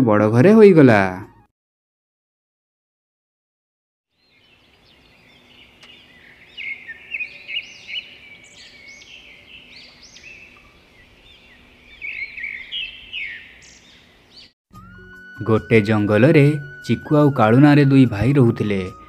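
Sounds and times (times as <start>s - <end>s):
birds chirping and twittering: 4.1s - 14.6s.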